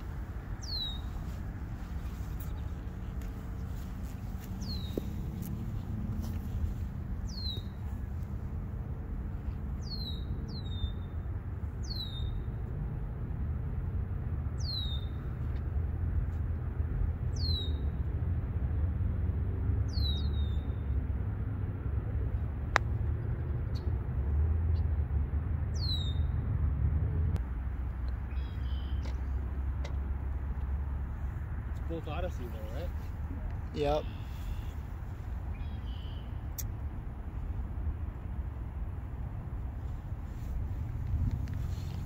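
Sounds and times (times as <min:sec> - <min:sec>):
bird chirping: 0:00.0 - 0:01.4, 0:03.6 - 0:05.7, 0:06.4 - 0:08.1, 0:09.8 - 0:11.2, 0:11.8 - 0:12.6, 0:14.6 - 0:15.3, 0:17.3 - 0:18.0, 0:19.9 - 0:21.0, 0:25.8 - 0:26.4, 0:28.2 - 0:29.2, 0:34.0 - 0:36.6.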